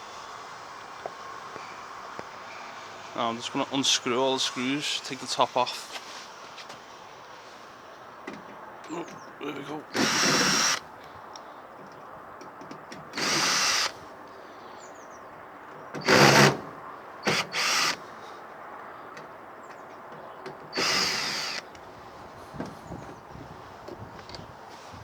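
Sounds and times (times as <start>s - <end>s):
power drill spinning: 10.0s - 10.8s, 13.1s - 14.0s, 16.0s - 16.6s, 17.2s - 18.0s, 20.7s - 21.7s.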